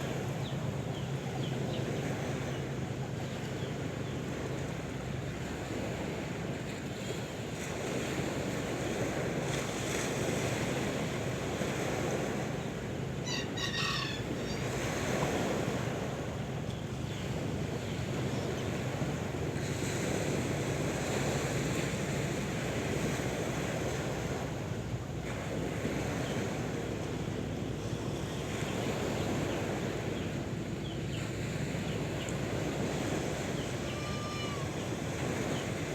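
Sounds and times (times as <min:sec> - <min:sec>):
sea waves washing on shore: 0:00.0 - 0:35.9
short high chirping call: 0:13.3 - 0:14.6.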